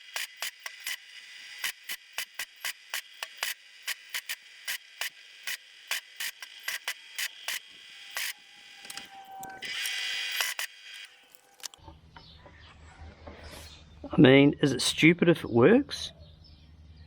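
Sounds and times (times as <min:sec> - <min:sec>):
welding arc crackle: 0:00.0 - 0:11.8.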